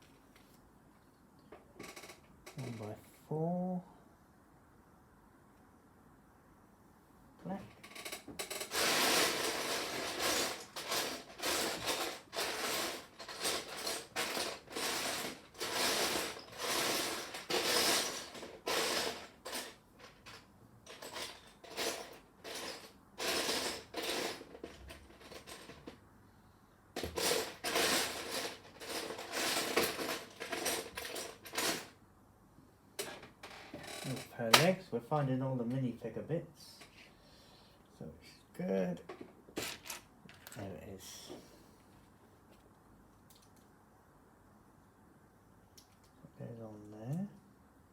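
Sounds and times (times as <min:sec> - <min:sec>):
plastic pieces clattering: 0:08.6 - 0:26.0, 0:27.0 - 0:31.9.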